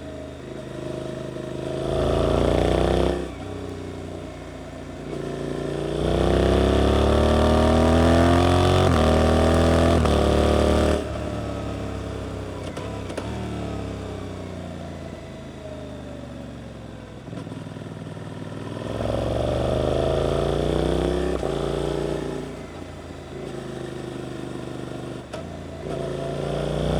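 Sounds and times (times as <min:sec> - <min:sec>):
motorcycle engine revving: 0:00.1 - 0:15.8, 0:17.2 - 0:26.9.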